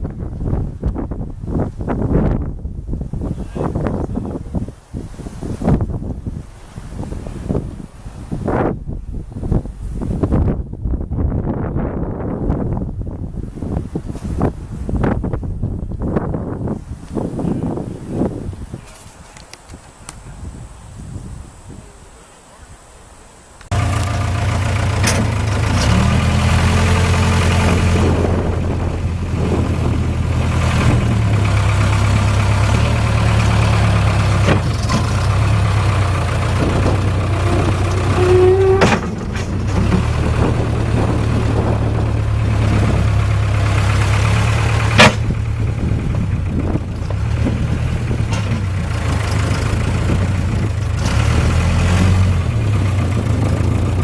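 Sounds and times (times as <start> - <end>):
diesel engine running: 23.7 - 54.0
sharp metal clanks: 45.0 - 45.3.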